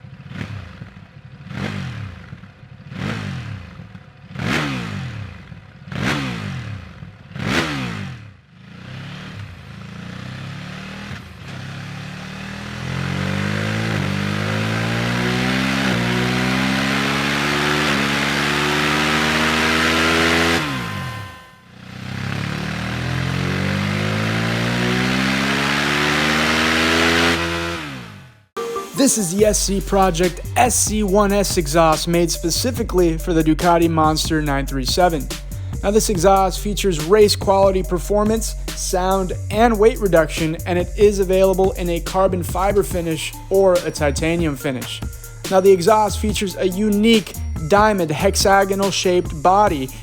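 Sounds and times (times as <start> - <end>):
motorcycle accelerating through gears: 0.0 - 28.5
motorcycle engine revving: 0.0 - 28.5, 29.4 - 50.0.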